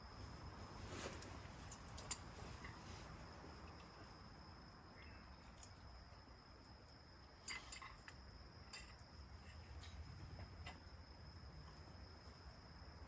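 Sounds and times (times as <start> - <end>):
faint steady high tone: 0.0 - 13.0
light clinks: 1.0 - 3.0, 6.6 - 10.9.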